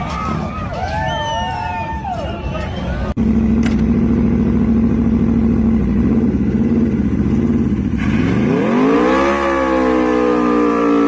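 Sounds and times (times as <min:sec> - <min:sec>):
motorcycle engine revving: 0:03.2 - 0:11.0.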